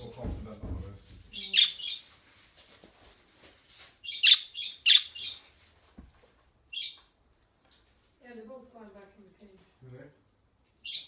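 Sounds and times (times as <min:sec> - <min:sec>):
pet birds calling: 0:01.3 - 0:02.1, 0:04.0 - 0:05.5, 0:06.7 - 0:07.1.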